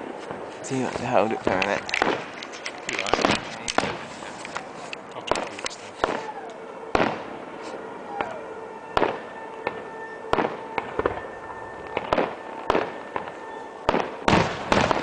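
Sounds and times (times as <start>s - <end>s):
fireworks bursting with bangs: 0.0s - 8.4s, 9.0s - 15.0s
falling firework whistle: 5.9s - 15.0s.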